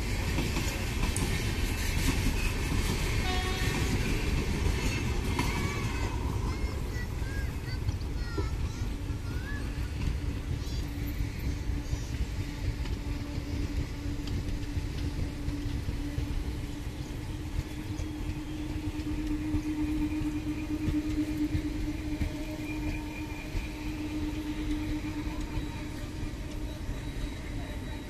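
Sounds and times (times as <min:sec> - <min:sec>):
train wheels rumbling on rail: 0:00.0 - 0:28.0
steady drone: 0:11.1 - 0:28.0.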